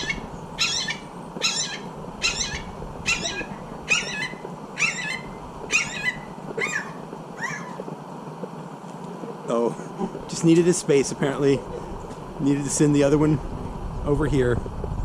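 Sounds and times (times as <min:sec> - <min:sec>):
bird harsh call: 0:00.0 - 0:07.9.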